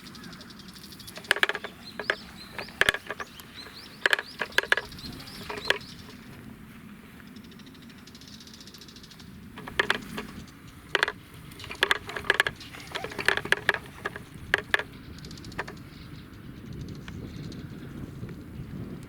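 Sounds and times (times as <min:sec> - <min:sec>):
wooden baby walker rattling: 0:00.9 - 0:06.4, 0:09.6 - 0:15.9.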